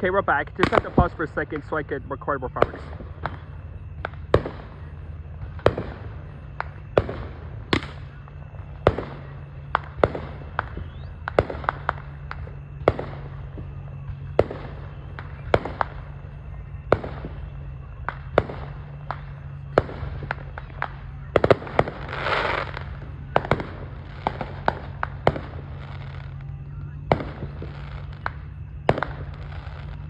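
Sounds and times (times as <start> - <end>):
fireworks bangs: 0.0 - 30.0
fireworks hissing burst: 0.0 - 30.0
low hum: 0.0 - 30.0.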